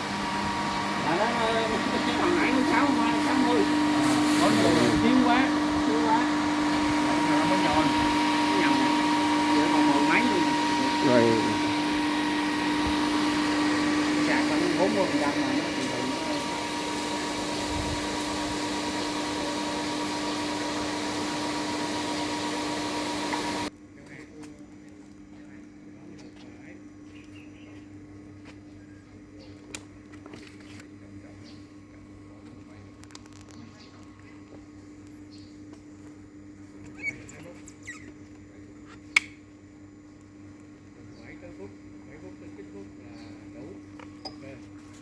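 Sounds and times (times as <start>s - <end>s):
electrical hum: 0.0s - 45.0s
fan whir: 0.0s - 45.0s
short high squeaks: 36.8s - 38.2s
sharp click: 39.1s - 39.4s.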